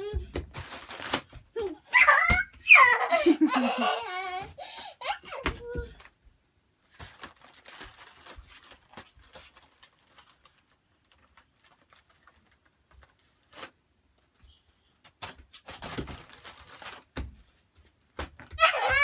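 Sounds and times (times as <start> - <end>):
faint taps and rustles of handling: 5.2 - 18.7.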